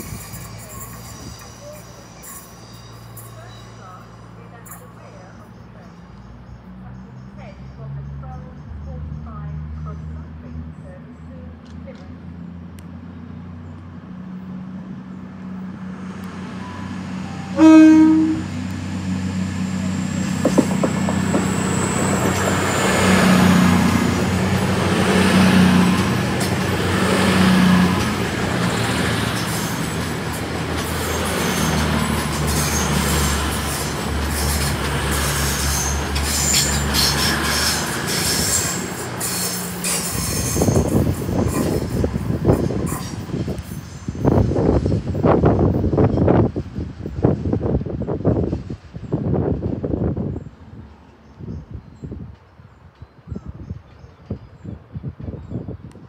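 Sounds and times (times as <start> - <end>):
diesel train engines running: 0.0 - 56.0
train horn toot: 17.4 - 18.7
wheels clicking over rail joints: 20.3 - 40.4.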